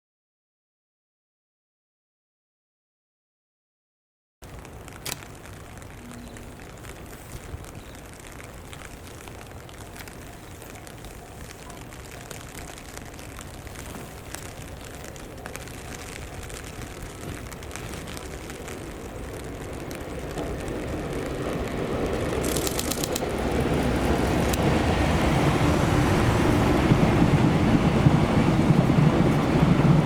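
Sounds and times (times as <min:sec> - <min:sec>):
train rumbling: 0:05.6 - 0:30.0
rapid clicks: 0:22.4 - 0:23.7.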